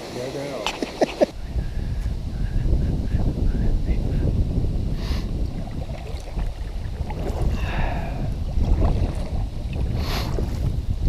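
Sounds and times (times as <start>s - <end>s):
wind rumbling on microphone: 0.6s - 11.0s
paddle splashing in water: 5.2s - 10.7s.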